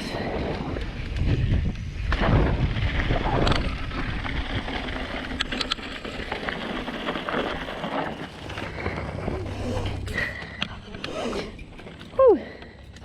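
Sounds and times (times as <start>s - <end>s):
wind buffeting microphone: 0.0s - 5.2s
tyres rumbling over dirt: 0.2s - 13.0s
bike parts rattling: 3.5s - 13.0s.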